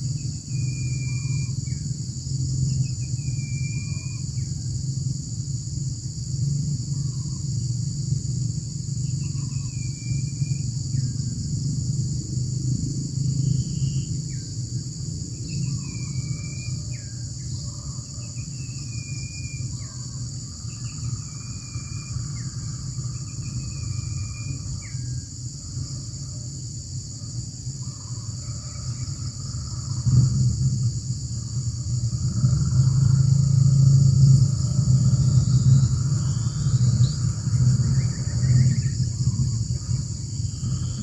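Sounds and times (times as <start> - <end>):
insects droning: 0.0 - 41.0
low rumble: 28.2 - 41.0.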